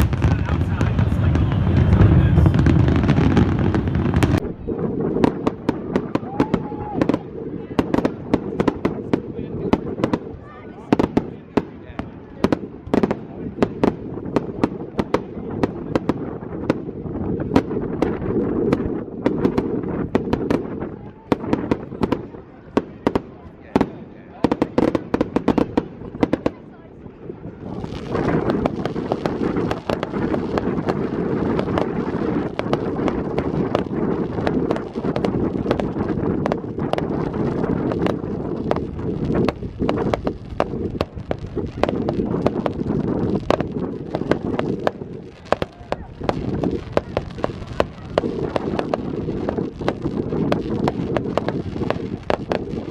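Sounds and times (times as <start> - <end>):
distant fireworks rumble: 0.0 - 52.9
fireworks cracks and bangs: 0.0 - 52.9.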